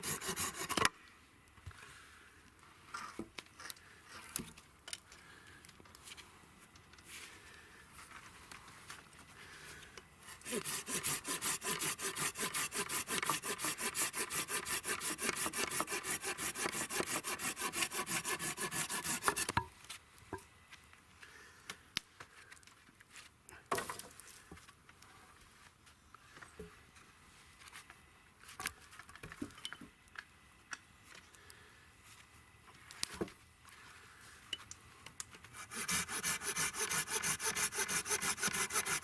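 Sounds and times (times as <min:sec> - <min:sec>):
hand saw cutting wood: 0:00.0 - 0:00.9, 0:10.3 - 0:19.6, 0:35.5 - 0:39.0.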